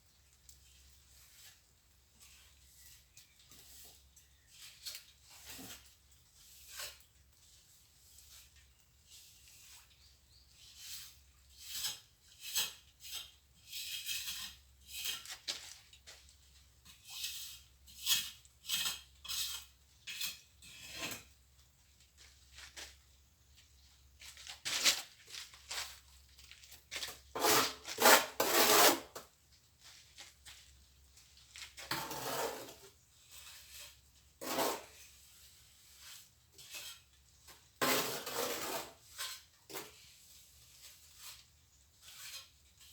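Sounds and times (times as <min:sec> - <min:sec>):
trowel scraping mortar: 0:00.7 - 0:16.2, 0:16.8 - 0:21.4, 0:26.8 - 0:29.3, 0:31.6 - 0:42.9.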